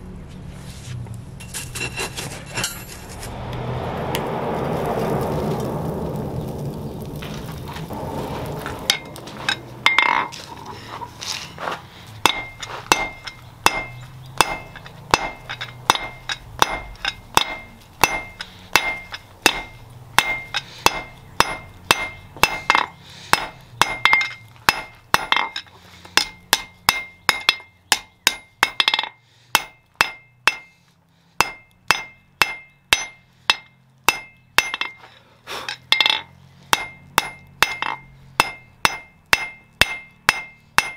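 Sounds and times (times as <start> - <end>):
hammer striking steel on anvil: 8.9 - 10.3, 12.2 - 30.8, 31.4 - 40.9.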